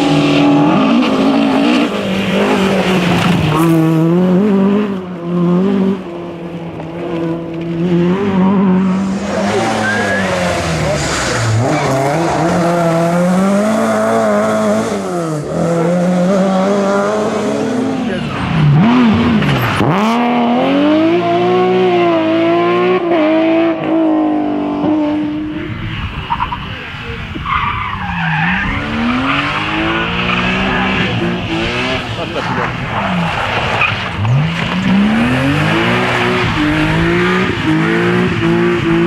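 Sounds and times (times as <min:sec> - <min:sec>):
rally car engine revving: 0:00.0 - 0:39.0
tyre squeal: 0:08.8 - 0:12.1.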